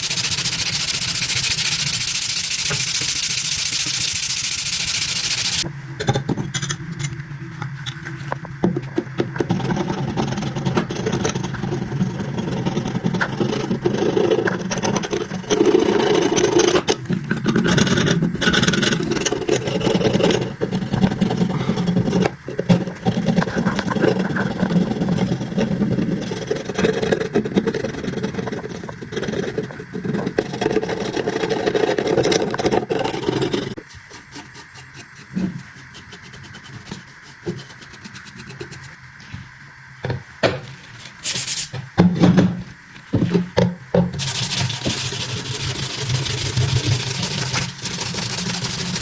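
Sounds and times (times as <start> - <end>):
blade scraping on abrasive: 0.0 - 5.7, 30.4 - 39.0
underlying whir: 0.0 - 49.0.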